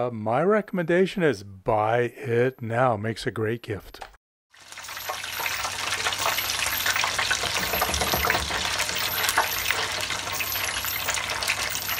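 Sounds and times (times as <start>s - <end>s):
food deep-frying in hot oil: 4.5s - 11.9s.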